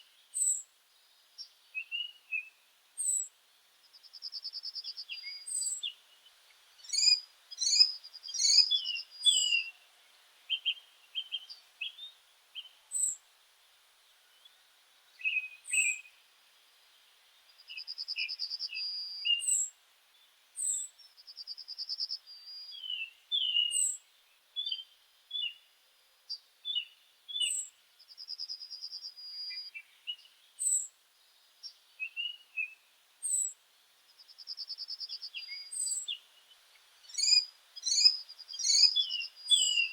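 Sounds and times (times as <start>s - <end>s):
bird chirps: 0.0s - 0.6s, 3.9s - 6.2s, 6.8s - 9.8s, 15.2s - 16.2s, 17.5s - 19.7s, 20.6s - 24.0s, 26.3s - 30.9s, 31.6s - 39.9s.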